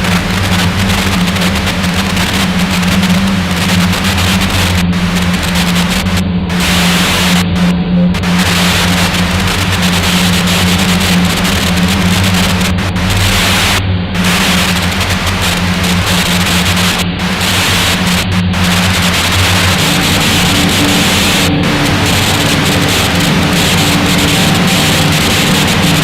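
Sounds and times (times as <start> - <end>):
loud static hiss: 0.0 - 26.0
steady low hum: 0.0 - 26.0.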